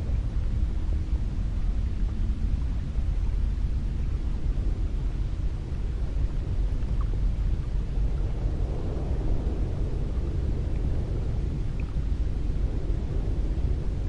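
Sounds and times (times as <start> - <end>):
wind blowing: 4.5 - 14.0.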